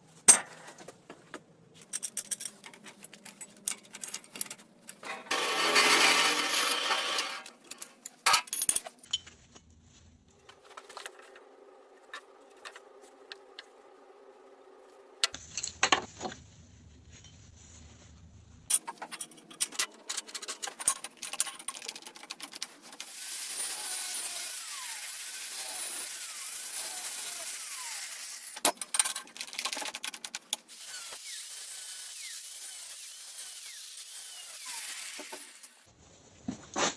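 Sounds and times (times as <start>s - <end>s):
metal parts clinking: 1.8s - 9.4s, 18.7s - 22.8s
power tool running under load: 5.3s - 7.5s, 23.0s - 28.6s, 30.7s - 35.8s.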